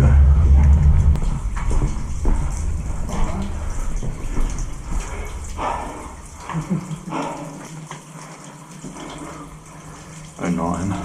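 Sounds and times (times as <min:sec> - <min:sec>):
low rumble: 0:00.0 - 0:06.9
footsteps splashing in water: 0:01.2 - 0:08.1.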